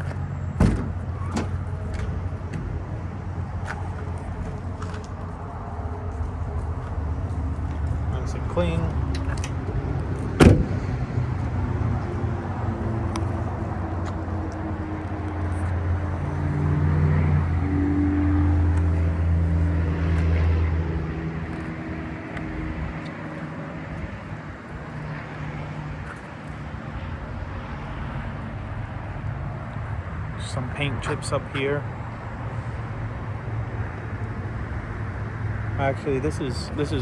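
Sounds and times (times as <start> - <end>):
van door slamming: 0.0 - 2.8, 10.1 - 11.0
vehicle engine humming: 0.0 - 37.0.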